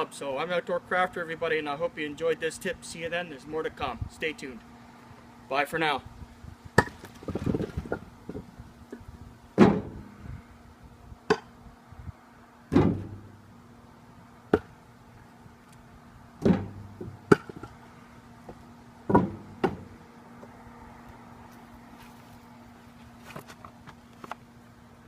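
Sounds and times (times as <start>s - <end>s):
firewood pieces knocking and landing: 6.8s - 8.5s, 16.4s - 17.8s, 19.1s - 19.9s.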